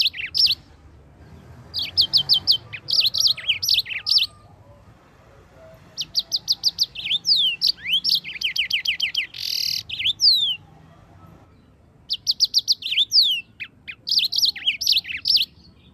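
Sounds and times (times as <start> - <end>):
finch singing trills and whistles: 0.0 - 0.6, 1.7 - 4.5, 6.0 - 10.6, 12.1 - 15.9.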